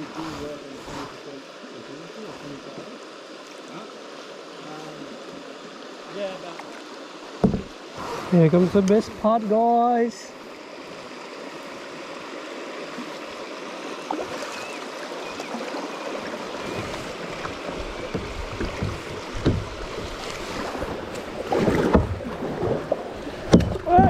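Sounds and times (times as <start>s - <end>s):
water rushing around kayak hull: 0.0s - 24.0s
paddle splashes and knocks: 6.4s - 9.5s, 12.6s - 24.0s.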